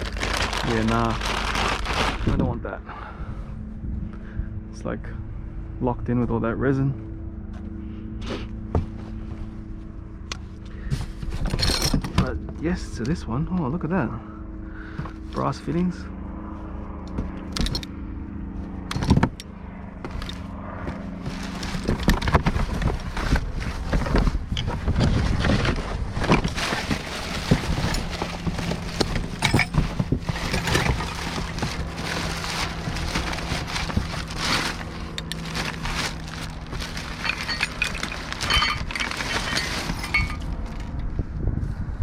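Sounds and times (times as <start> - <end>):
clinks and rattles of items: 0.0 - 2.6, 10.9 - 12.6, 17.2 - 18.0, 18.8 - 41.1
hands rummaging through scrap: 0.0 - 2.6, 10.6 - 12.4, 20.0 - 41.1.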